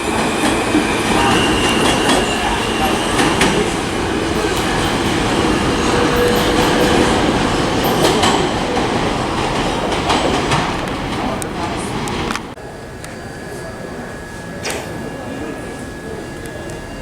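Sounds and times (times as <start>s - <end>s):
subway train rumbling on rails: 0.0s - 17.0s.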